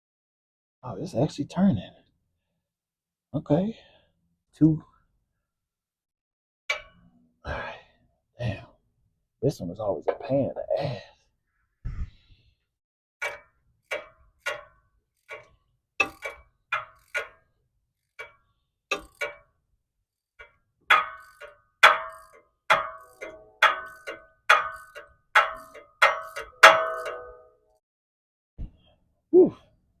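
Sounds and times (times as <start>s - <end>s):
ratchet wrench clicking: 13.2s - 27.4s.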